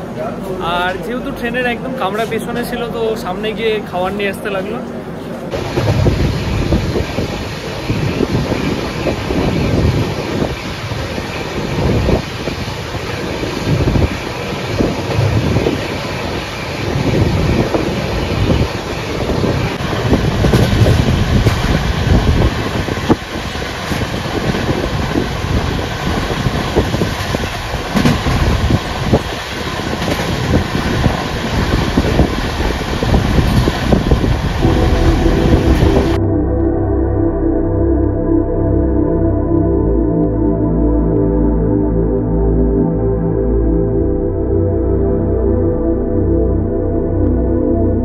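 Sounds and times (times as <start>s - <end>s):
train wheels rumbling on rail: 0.0s - 36.2s
wind buffeting microphone: 5.5s - 36.2s.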